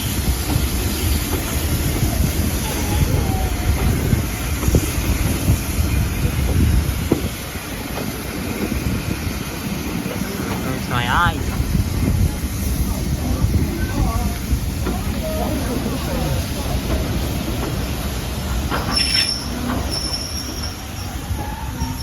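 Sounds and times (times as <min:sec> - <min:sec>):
wind on microphone: 0:00.0 - 0:07.8, 0:11.2 - 0:15.8
railway carriage rumbling: 0:00.0 - 0:22.0.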